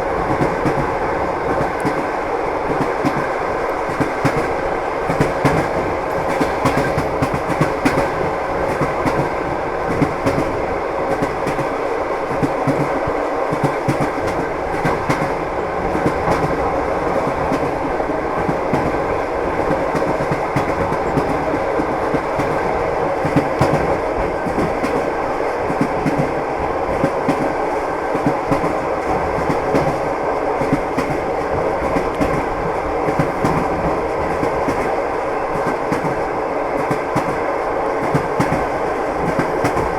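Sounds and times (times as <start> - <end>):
train rumble: 0.0 - 39.9
train wheels clattering over joints: 3.9 - 17.8.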